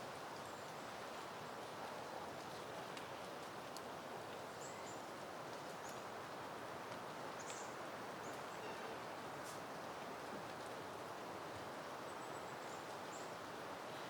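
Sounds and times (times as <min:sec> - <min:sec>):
wind rustling plants: 0:00.0 - 0:14.0.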